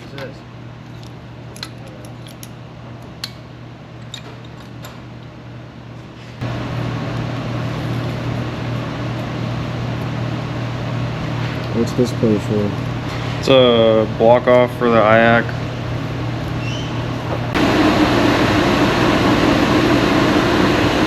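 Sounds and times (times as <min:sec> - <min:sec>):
steady machine hum: 0:00.0 - 0:21.0
loud machine running: 0:06.4 - 0:16.5, 0:17.1 - 0:21.0.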